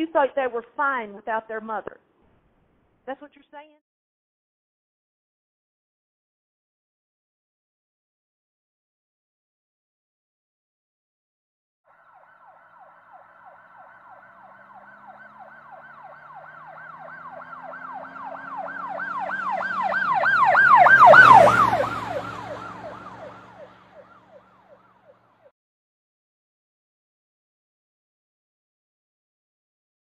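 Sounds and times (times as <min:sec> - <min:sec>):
siren yelping: 0:11.9 - 0:25.5
vehicle engine: 0:12.1 - 0:25.5.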